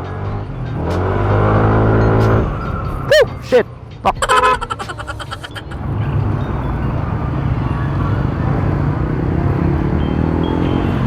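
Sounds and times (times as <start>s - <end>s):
low rumble of riding noise: 4.4s - 11.0s.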